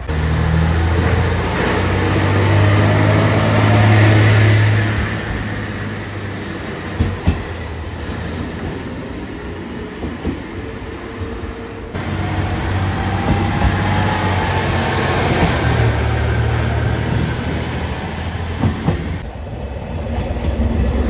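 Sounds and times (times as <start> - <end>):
diesel railcar droning: 0.0 - 9.7, 12.0 - 19.4.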